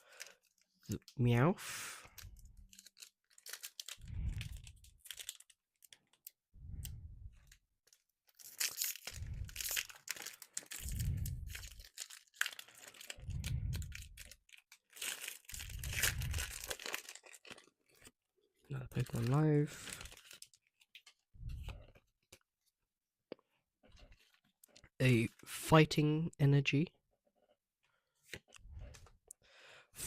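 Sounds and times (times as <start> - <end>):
foil wrapper tearing and crinkling: 2.2 - 6.4, 7.8 - 18.1, 19.0 - 21.0.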